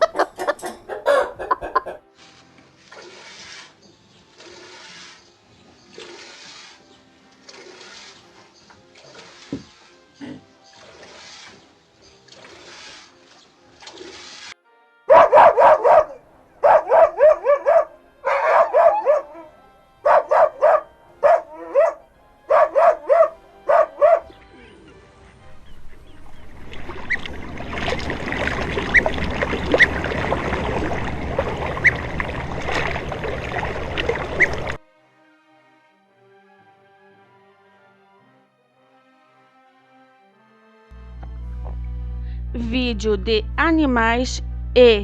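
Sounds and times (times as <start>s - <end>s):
dog barking: 0.8s - 1.5s, 15.1s - 24.4s.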